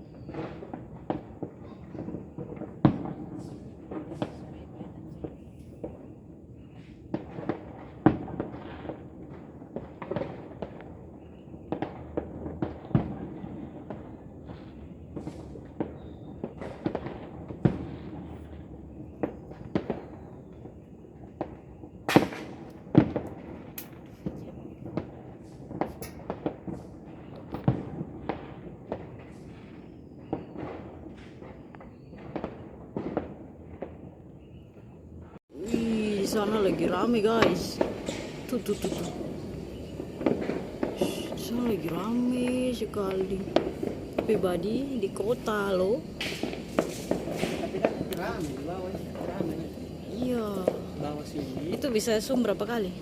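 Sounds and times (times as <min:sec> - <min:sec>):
fireworks and firecrackers banging: 0:00.0 - 0:53.0
steady background hiss: 0:35.6 - 0:53.0.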